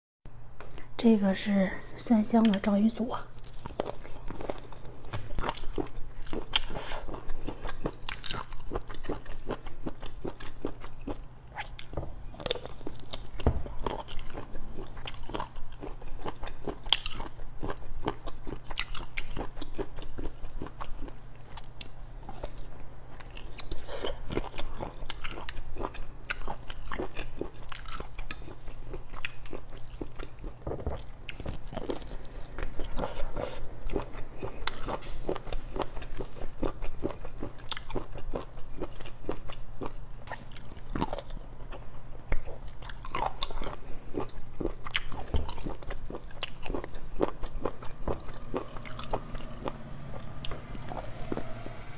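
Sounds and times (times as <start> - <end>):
chewing with mouth clicks: 3.3 - 51.8.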